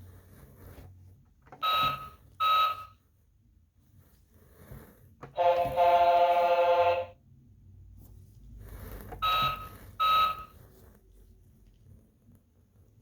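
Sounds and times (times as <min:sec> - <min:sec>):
short electronic beeps: 0:09.2 - 0:10.5.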